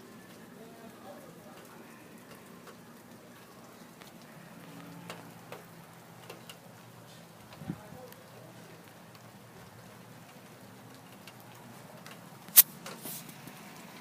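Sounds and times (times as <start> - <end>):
light rain falling: 0.0 - 14.0.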